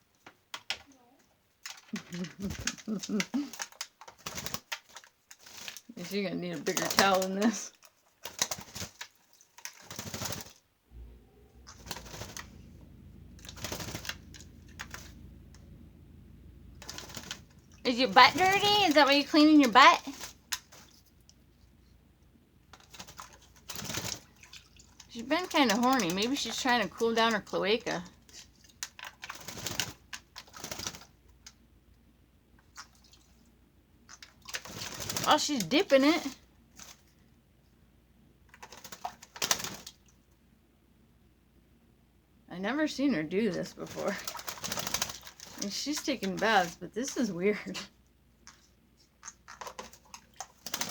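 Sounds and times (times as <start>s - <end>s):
bird wings splashing water: 1.7s - 5.9s, 6.6s - 10.6s, 11.6s - 15.7s, 16.8s - 21.4s, 22.7s - 31.2s, 32.7s - 33.4s, 34.1s - 37.1s, 38.6s - 40.2s, 43.7s - 47.2s, 48.5s - 50.9s.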